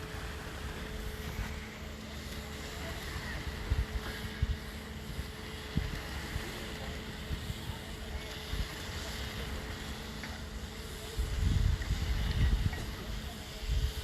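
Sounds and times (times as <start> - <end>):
steady machine hum: 0.0 - 14.0
wind buffeting microphone: 2.4 - 14.0.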